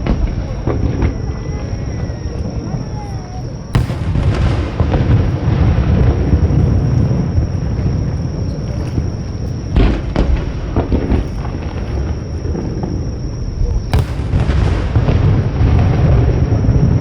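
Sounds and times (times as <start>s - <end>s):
small firework pops: 0.0s - 1.3s, 3.8s - 5.2s, 13.9s - 16.2s
fireworks booming: 0.0s - 17.0s
sharp firework bang: 3.8s - 7.3s, 9.8s - 12.1s, 13.9s - 17.0s.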